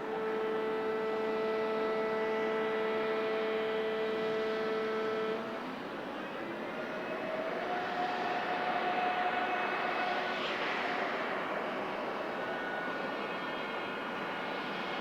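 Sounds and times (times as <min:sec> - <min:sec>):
jet engines whining: 0:05.6 - 0:15.0.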